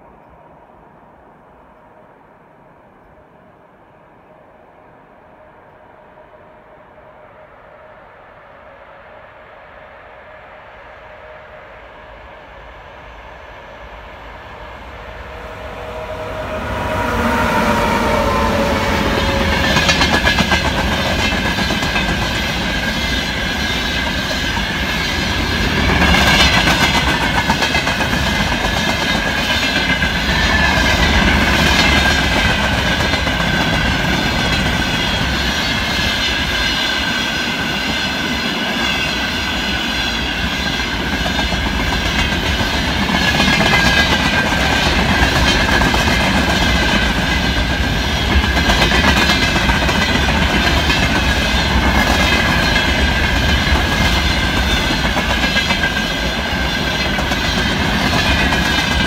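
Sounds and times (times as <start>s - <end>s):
locomotive tone falling in pitch: 13.3s - 21.4s
train wheels clickety-clack: 15.3s - 59.0s.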